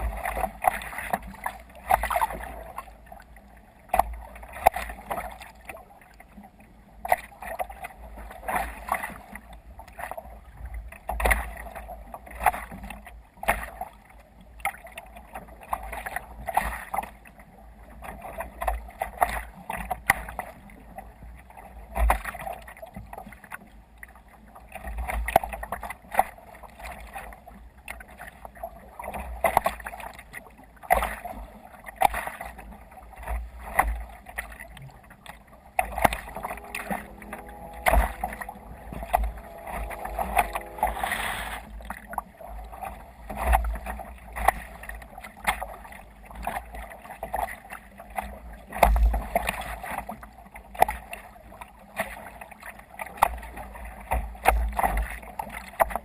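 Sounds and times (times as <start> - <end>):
splashes: 21.6 - 56.0
water slapping against kayak hull: 24.7 - 37.0
steady pitched hum: 35.0 - 43.3.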